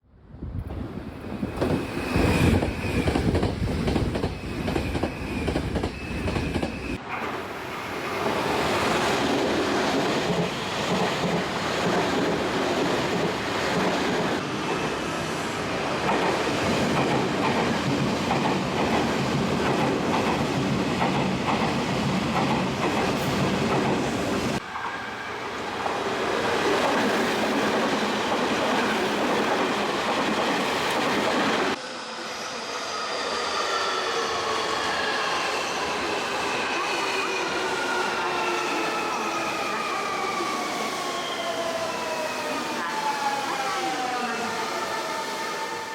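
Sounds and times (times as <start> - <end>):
train wheels clacking on rails: 1.4 - 7.0, 9.2 - 14.8, 16.0 - 24.2.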